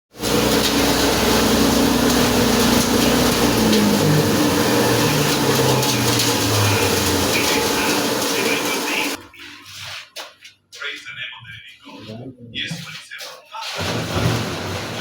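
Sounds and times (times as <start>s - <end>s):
grinding mill running: 0.1s - 9.4s, 13.8s - 15.0s.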